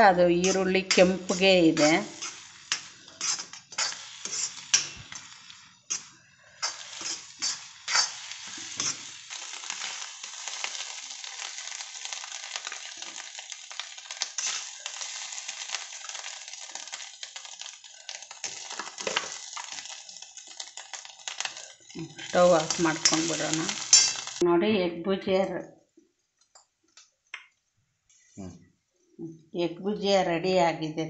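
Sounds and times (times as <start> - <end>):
eggs sizzling in a pan: 0.0 - 24.4
spoon scraping and tapping a pan: 0.4 - 9.0, 22.6 - 24.4.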